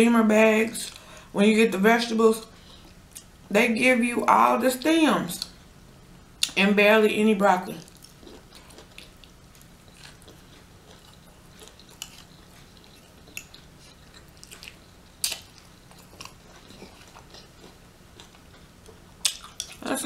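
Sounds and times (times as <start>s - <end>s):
person chewing food: 7.8s - 19.8s.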